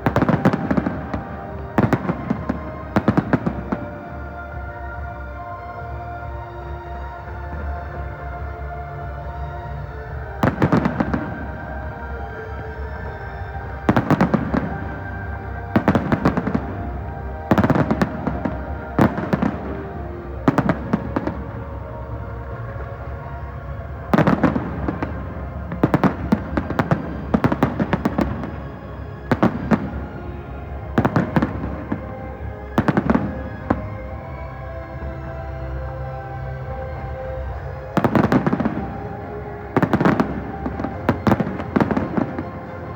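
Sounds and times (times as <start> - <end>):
fireworks crackling bangs: 0.0 - 4.2, 10.4 - 11.9, 13.7 - 34.2, 37.3 - 42.9
music playing: 0.0 - 42.9.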